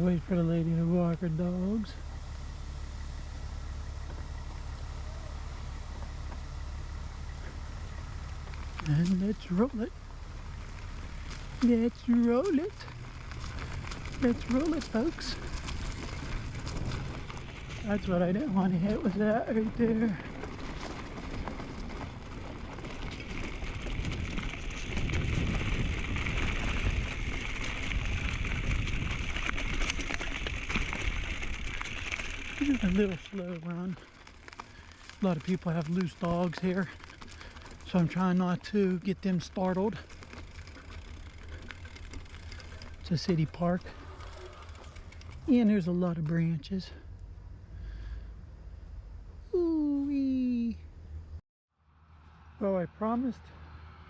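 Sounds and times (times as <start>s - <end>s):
low background rumble: 0.0s - 51.4s
bike clicks and rattles: 7.4s - 46.5s
wind rushing over microphone: 15.4s - 32.0s.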